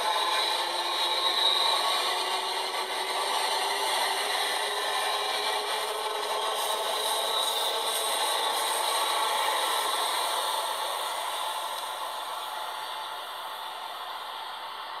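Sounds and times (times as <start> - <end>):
train passing at speed: 0.0 - 15.0.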